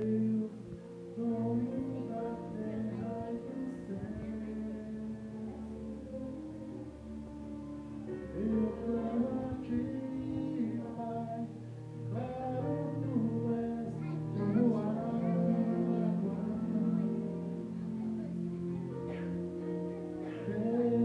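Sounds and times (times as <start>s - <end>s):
person singing: 0.0s - 7.4s, 8.0s - 21.0s
instrumental accompaniment: 0.0s - 21.0s.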